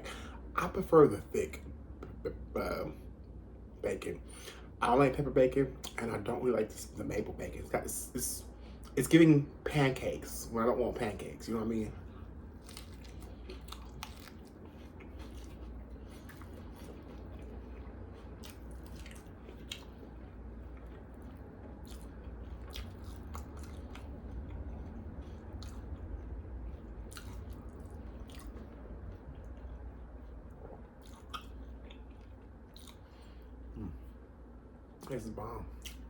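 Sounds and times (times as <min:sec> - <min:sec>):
close-up chewing sandwich: 0:11.1 - 0:34.3.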